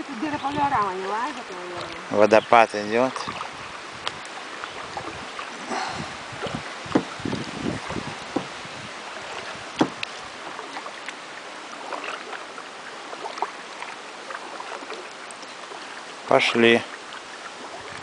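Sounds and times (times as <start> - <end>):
water splashing against hull: 0.0 - 18.0
light knocks: 6.9 - 7.1, 8.3 - 8.6, 9.8 - 10.1.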